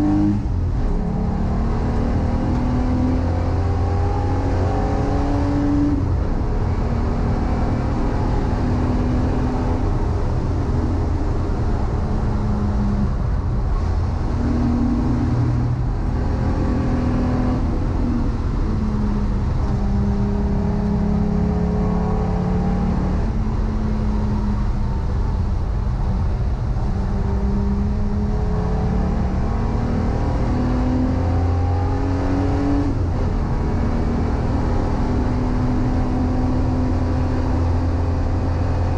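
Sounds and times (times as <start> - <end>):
race car engine accelerating: 0.0 - 25.5, 26.7 - 38.9
road and wind noise: 0.0 - 38.9.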